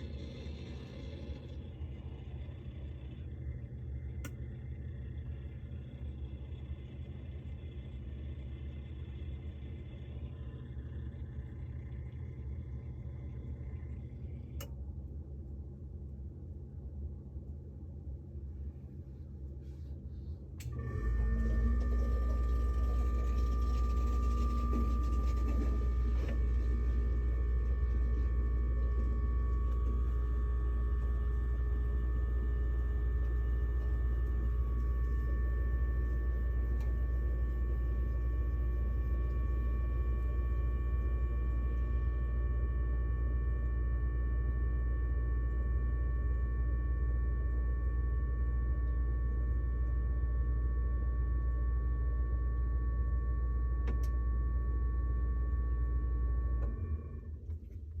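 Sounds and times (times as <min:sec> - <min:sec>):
faint whining tones: 0:00.0 - 0:58.0
refrigerator compressor humming: 0:00.0 - 0:58.0.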